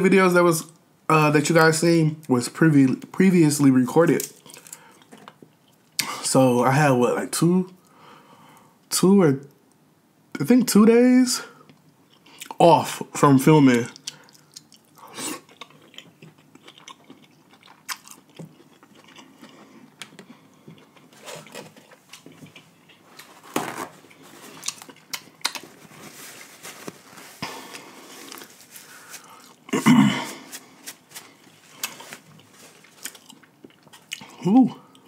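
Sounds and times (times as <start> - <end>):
close chewing with wet mouth sounds: 13.9 - 23.0.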